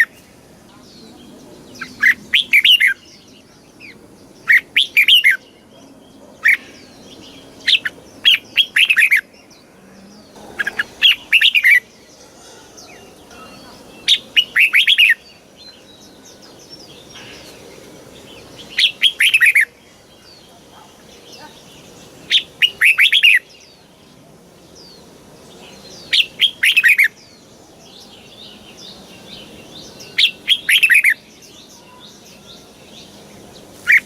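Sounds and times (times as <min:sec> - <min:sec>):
faint bird chirps: 0:00.0 - 0:24.2
bird singing warbled phrases: 0:00.0 - 0:34.0.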